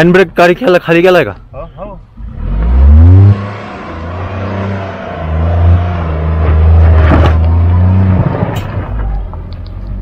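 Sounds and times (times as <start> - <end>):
car engine revving: 2.2 - 9.0.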